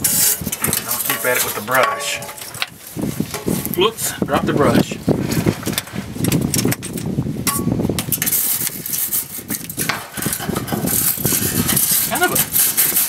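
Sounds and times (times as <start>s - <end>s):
wire brush scraping metal: 0.0s - 2.6s, 7.5s - 13.0s.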